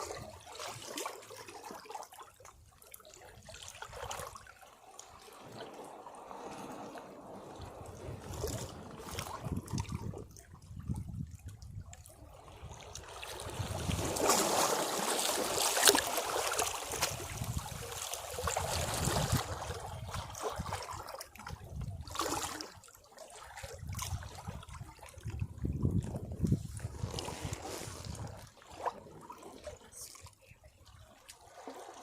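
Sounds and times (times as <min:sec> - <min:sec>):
sea waves washing against rocks: 0:05.1 - 0:10.3, 0:12.6 - 0:19.8, 0:26.0 - 0:30.1.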